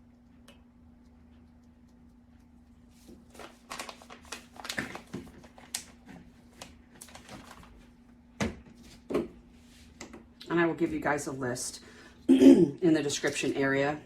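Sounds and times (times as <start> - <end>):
faint steady hum: 0.0 - 14.0
containers and packaging rustling: 3.0 - 8.0.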